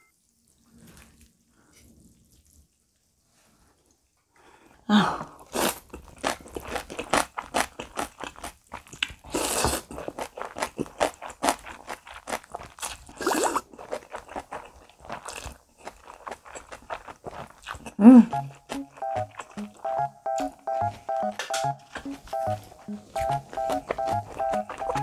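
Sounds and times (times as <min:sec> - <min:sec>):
slurping noodles: 0:05.4 - 0:20.1
crunching and chewing: 0:05.4 - 0:25.0.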